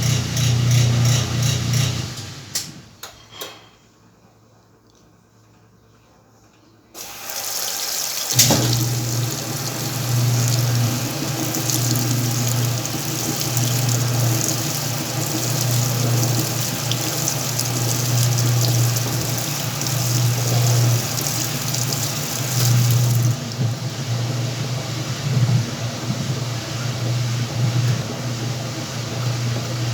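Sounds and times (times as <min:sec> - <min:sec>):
water rushing into tub: 0:07.0 - 0:29.9
pulsing motor hum: 0:08.7 - 0:29.9.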